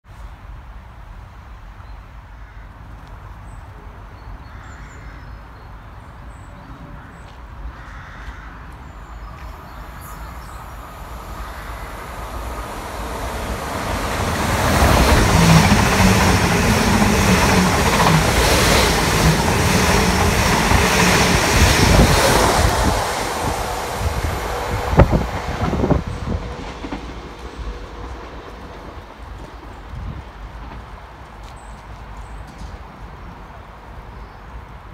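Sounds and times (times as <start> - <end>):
low train hum: 8.5 - 34.9
train rushing past: 9.1 - 31.4.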